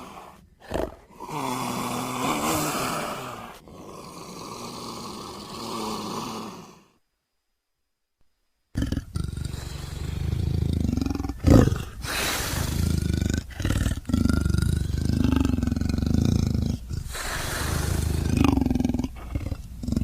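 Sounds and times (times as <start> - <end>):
leopard roaring calls: 8.8 - 20.0.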